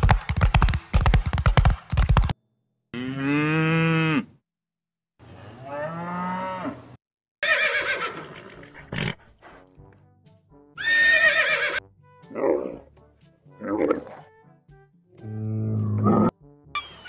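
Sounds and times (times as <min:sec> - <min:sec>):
cow mooing: 0:03.0 - 0:04.4, 0:05.4 - 0:06.9
horse whinnying: 0:07.4 - 0:09.2, 0:10.8 - 0:11.8.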